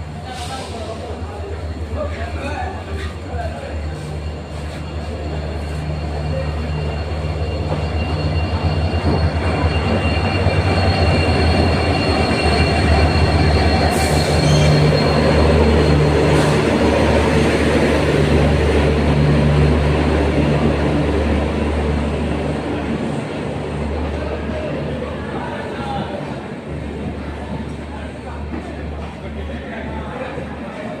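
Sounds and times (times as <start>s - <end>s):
train rumbling on rails: 0.0s - 31.0s
high squeal of wheels on rail: 0.2s - 19.3s.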